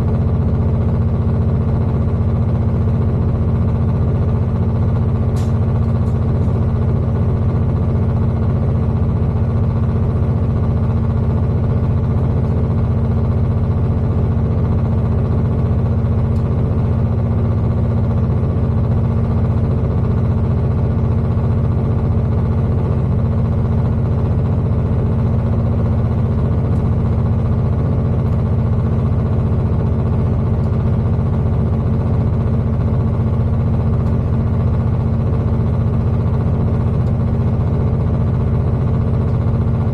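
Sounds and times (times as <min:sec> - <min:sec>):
diesel train engine hum: 0:00.0 - 0:39.9
train running noise: 0:04.5 - 0:08.5.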